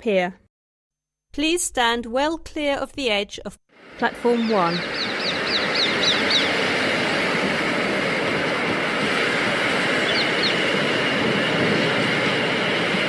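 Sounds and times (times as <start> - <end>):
falling bird chirps: 4.6 - 6.9, 10.0 - 10.7
train wheels on rail: 4.8 - 13.0.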